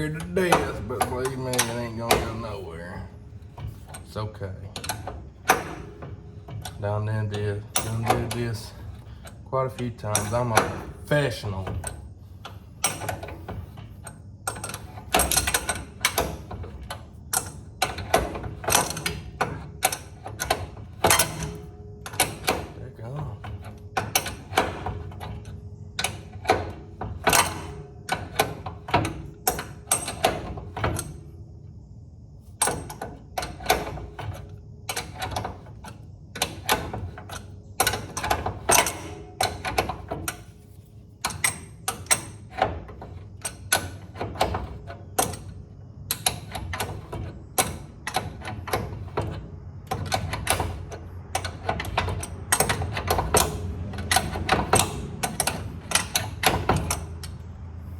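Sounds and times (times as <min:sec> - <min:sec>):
hand tools clicking: 0:00.0 - 0:04.2, 0:32.6 - 0:40.6, 0:41.2 - 0:57.5
steady low hum: 0:00.0 - 0:57.9.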